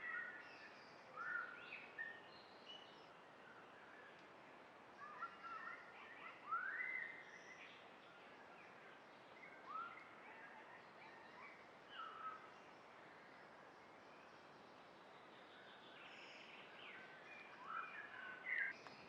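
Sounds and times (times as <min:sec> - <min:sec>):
quiet steady hiss: 0:00.0 - 0:19.0.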